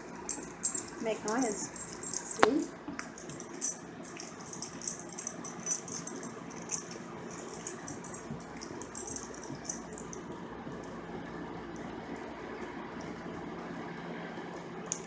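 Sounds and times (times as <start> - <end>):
dog collar tags jingling: 0.3 - 10.2.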